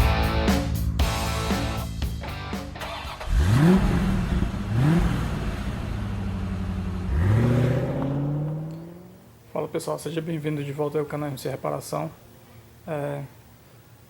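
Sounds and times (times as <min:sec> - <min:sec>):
rock guitar music: 0:00.0 - 0:03.8
car engine revving: 0:02.8 - 0:09.4.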